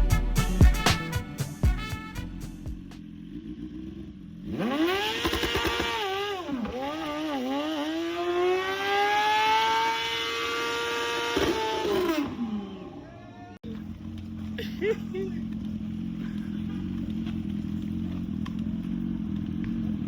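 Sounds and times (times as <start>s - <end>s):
motorcycle engine revving: 0.0s - 13.0s, 13.7s - 20.0s.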